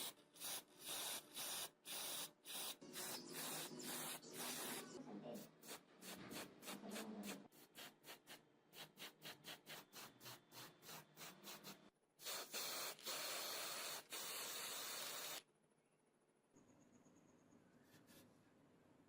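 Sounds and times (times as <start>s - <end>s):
steady spray hiss: 12.2s - 15.4s.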